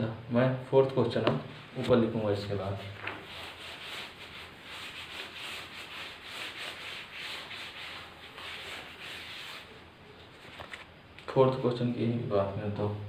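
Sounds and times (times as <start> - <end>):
scratchy handwriting strokes: 3.2 - 9.7.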